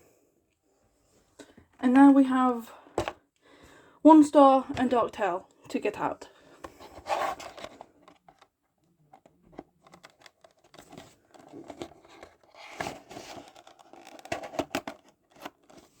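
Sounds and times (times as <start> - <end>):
packaging crinkling and rustling: 9.1 - 16.0.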